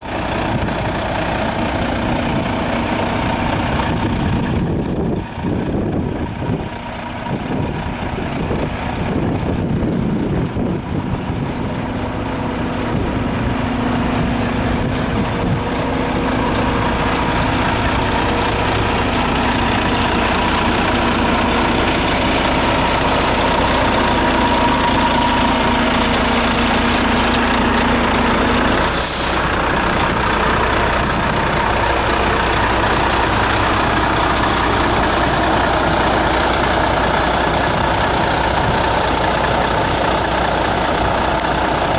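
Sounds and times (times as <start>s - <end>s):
diesel engine idling: 0.0s - 41.9s
short hiss: 28.7s - 29.5s.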